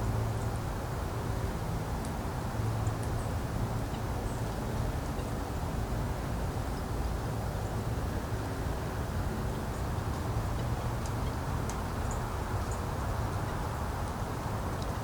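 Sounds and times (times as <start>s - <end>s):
small birds chirping: 11.1s - 13.8s.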